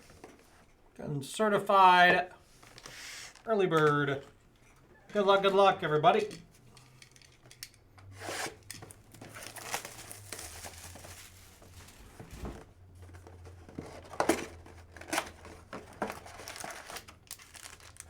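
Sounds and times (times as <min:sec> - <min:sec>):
plastic wrapping crinkling: 0:08.9 - 0:12.5, 0:14.8 - 0:18.0
plastic wrapping ripping: 0:09.2 - 0:12.1, 0:16.3 - 0:18.0.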